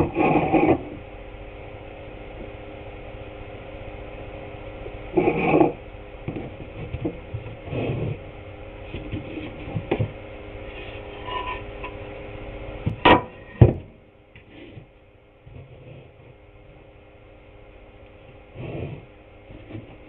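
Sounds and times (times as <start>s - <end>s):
steady machine hum: 0.0s - 20.0s
wooden boards knocking and clattering: 13.0s - 13.9s.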